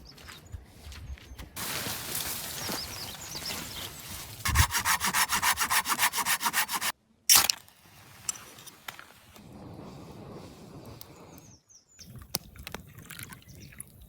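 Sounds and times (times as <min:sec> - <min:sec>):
light scraping on wood: 0:04.5 - 0:06.9
hand saw cutting wood: 0:04.5 - 0:07.5.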